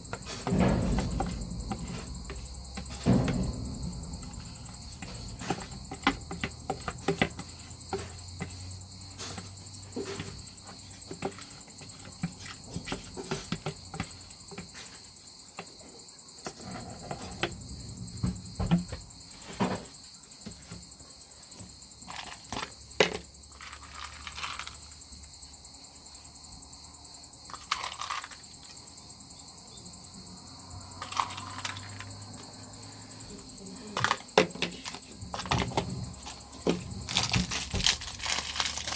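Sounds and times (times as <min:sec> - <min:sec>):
crickets chirring: 0:00.0 - 0:38.9
louder knocks: 0:00.4 - 0:06.6.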